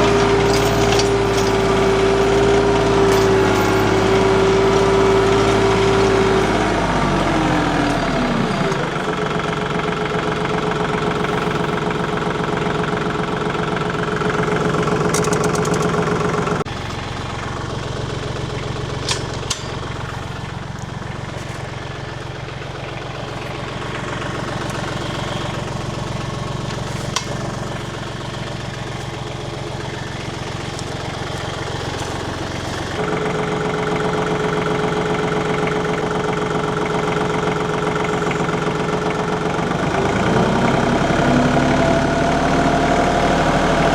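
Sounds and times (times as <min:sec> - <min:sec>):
tractor engine running: 0:00.0 - 0:43.9
sharp clicks: 0:15.0 - 0:16.1.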